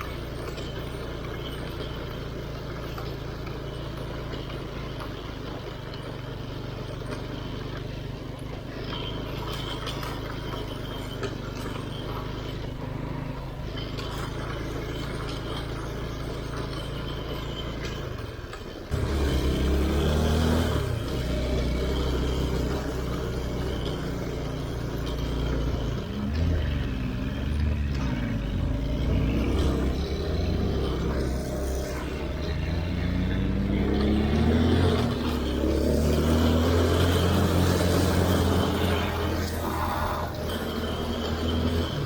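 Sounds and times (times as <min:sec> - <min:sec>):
vehicle engine revving: 0:00.0 - 0:42.0.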